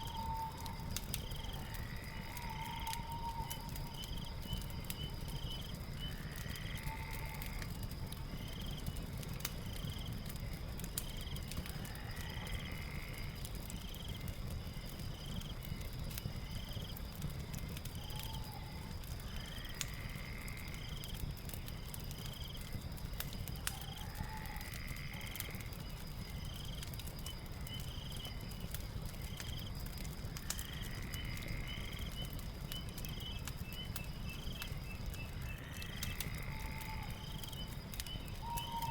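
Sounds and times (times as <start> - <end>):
fire crackling: 0.0 - 38.9
high insect trill: 0.0 - 38.9
longer animal call: 1.5 - 4.0, 35.9 - 37.5, 38.4 - 38.9.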